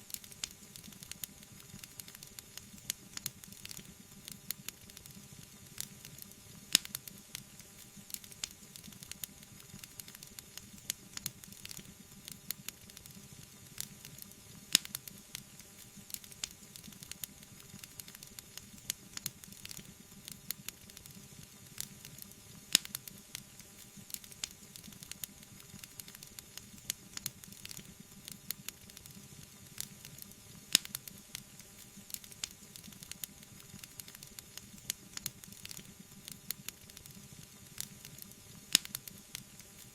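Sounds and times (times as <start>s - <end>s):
wood fire crackling: 0.1s - 39.9s
sharp fire pops: 13.8s - 15.2s, 22.7s - 23.1s, 29.8s - 31.2s, 37.8s - 39.2s.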